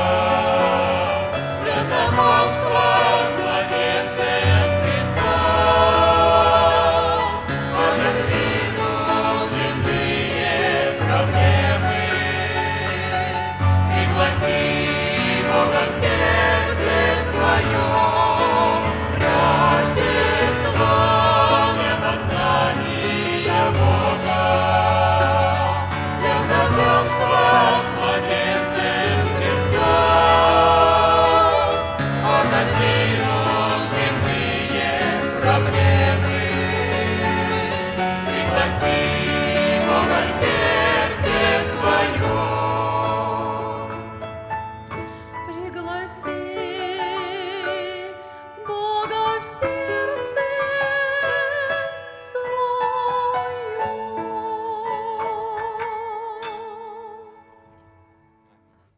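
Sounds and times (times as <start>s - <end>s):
instrumental accompaniment: 0.0s - 46.5s
group singing a christmas song: 0.0s - 57.3s.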